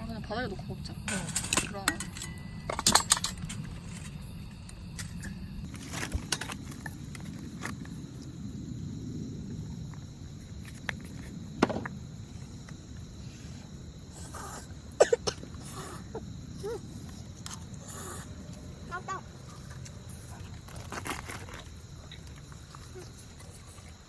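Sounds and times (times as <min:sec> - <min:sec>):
utensils clinking on pot: 0:01.0 - 0:04.2.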